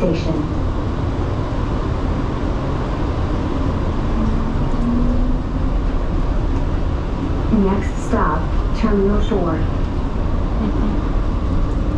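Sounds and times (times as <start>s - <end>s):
train car rumble with whine: 0.0s - 11.9s.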